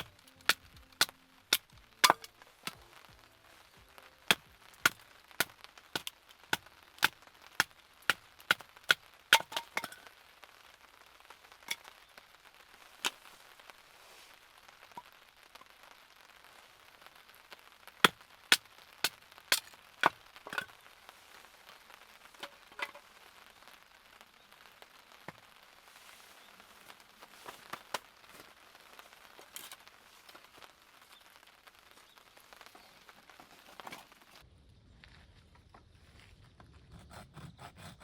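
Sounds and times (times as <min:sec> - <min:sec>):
firewood being chopped: 0:00.0 - 0:03.3, 0:04.2 - 0:10.1, 0:18.0 - 0:20.9, 0:27.4 - 0:28.6
light rain hiss: 0:00.0 - 0:36.3.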